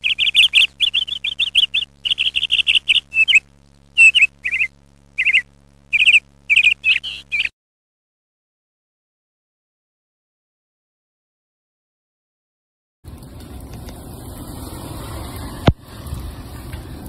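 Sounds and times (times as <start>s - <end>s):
small songbird chirping: 0.0s - 7.5s.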